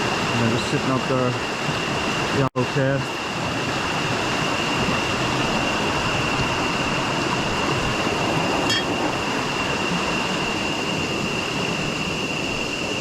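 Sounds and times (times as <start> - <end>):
river water rushing: 0.0 - 13.0
high-pitched whine: 2.6 - 13.0.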